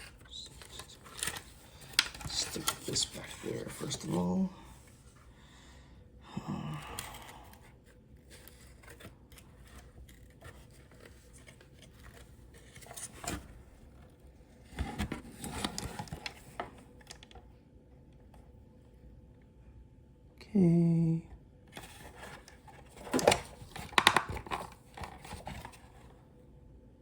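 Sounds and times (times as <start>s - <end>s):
plastic parts clicking and scraping: 0.0s - 4.1s, 14.8s - 17.4s, 21.8s - 26.1s.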